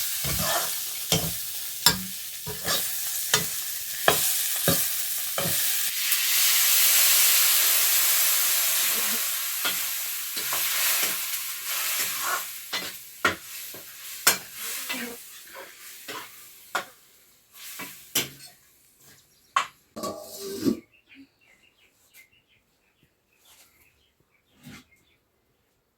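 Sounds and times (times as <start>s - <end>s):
spatula scraping a pan: 0.0s - 5.9s, 8.8s - 17.0s, 17.6s - 19.2s
food sizzling in hot oil: 0.0s - 18.5s.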